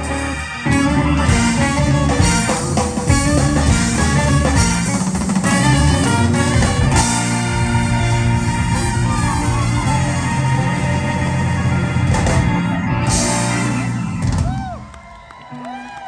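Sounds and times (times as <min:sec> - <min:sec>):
drums: 0:00.0 - 0:16.0
live band playing: 0:00.0 - 0:16.0.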